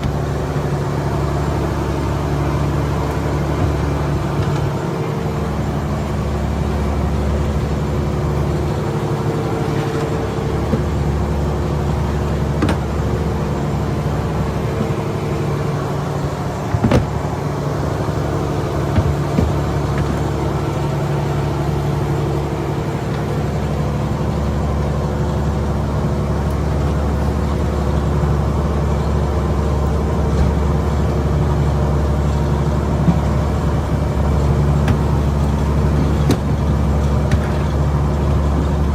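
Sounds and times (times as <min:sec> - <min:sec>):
boat engine running: 0:00.0 - 0:38.9
short knocks: 0:16.6 - 0:17.4, 0:18.9 - 0:20.3.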